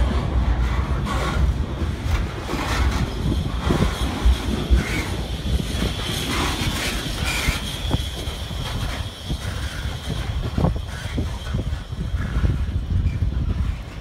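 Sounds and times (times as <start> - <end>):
freight train rumbling past: 0.0 - 14.0
high-pitched wheel squeal: 4.6 - 13.4.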